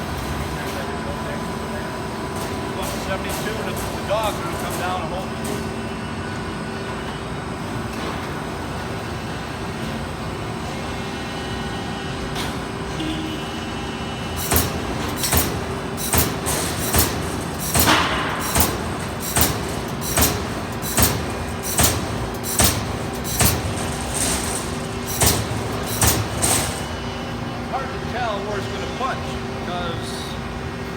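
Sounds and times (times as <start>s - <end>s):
machine humming: 0.0s - 30.9s
sheet metal punching hits: 14.4s - 27.0s.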